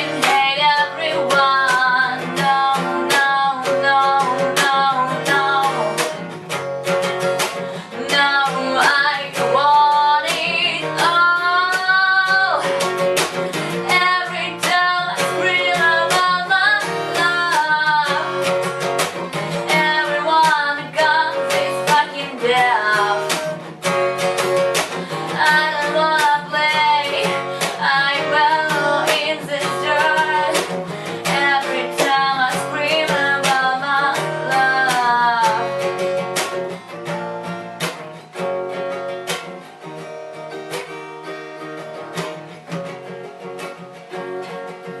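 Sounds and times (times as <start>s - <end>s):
person singing: 0.0s - 6.2s, 7.8s - 23.7s, 24.8s - 36.1s
strummed acoustic guitar: 0.0s - 45.0s.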